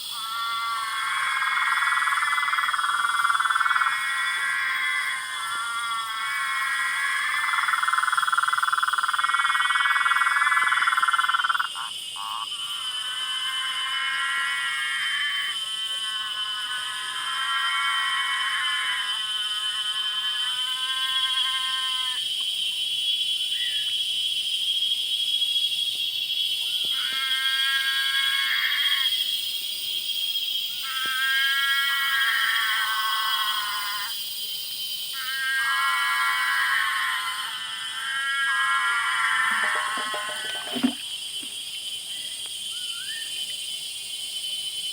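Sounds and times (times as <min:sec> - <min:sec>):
frog chorus trilling: 0:00.0 - 0:22.2, 0:30.7 - 0:34.2, 0:35.1 - 0:41.5
short frog calls: 0:00.0 - 0:44.9.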